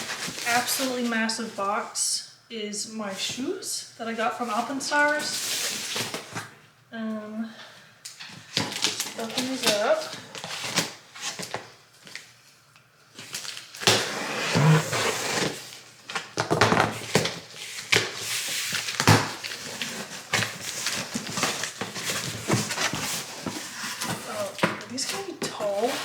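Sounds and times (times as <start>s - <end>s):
packing rustling: 0.0s - 1.2s, 13.2s - 26.0s
knocks and crinkles of handling: 8.1s - 12.4s, 15.4s - 26.0s.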